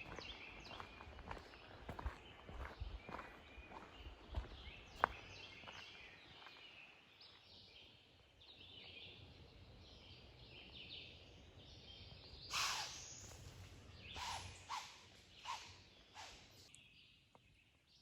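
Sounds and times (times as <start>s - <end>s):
crunching footsteps: 0.0s - 6.7s
songbirds singing faintly: 0.0s - 18.0s.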